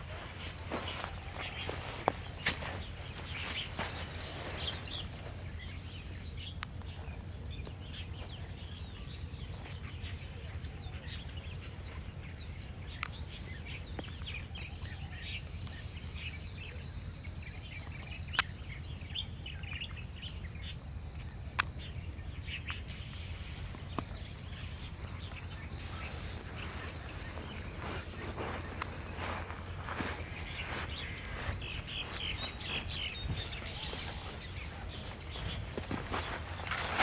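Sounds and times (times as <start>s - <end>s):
small birds chirping: 0.0s - 37.0s
steady low rumble: 0.0s - 37.0s
sharp clicks: 15.6s - 18.7s, 20.5s - 21.9s.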